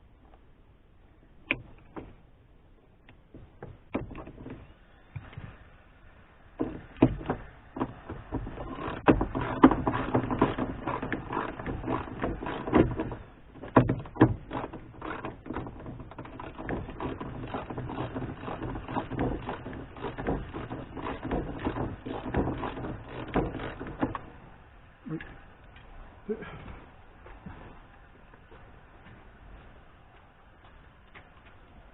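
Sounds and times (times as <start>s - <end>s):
plastic clicks and knocks: 6.6s - 24.3s.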